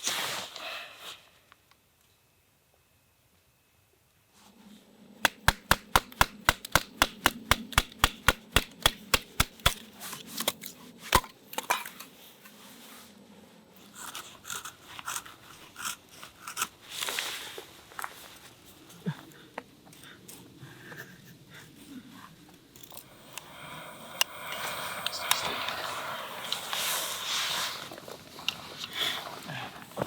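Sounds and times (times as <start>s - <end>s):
sharp knocks on wood: 5.3s - 9.5s.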